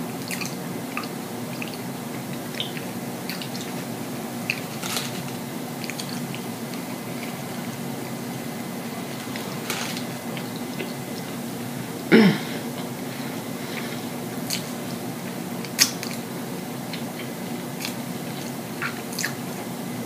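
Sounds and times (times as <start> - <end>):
person chewing with open mouth: 0.1 - 8.2, 12.8 - 15.0, 15.6 - 19.6.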